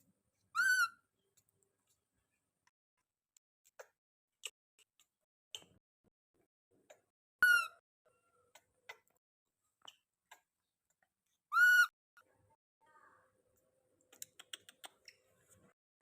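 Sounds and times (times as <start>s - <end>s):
baby monkey squeaking calls: 0.6s - 1.0s, 7.4s - 7.8s, 11.5s - 11.9s.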